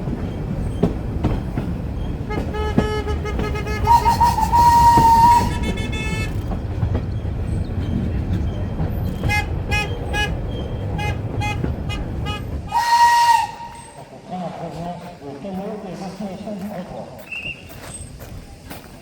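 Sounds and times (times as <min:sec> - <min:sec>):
train rumbling: 0:00.0 - 0:19.0
train whistle: 0:02.3 - 0:06.4, 0:11.0 - 0:14.0.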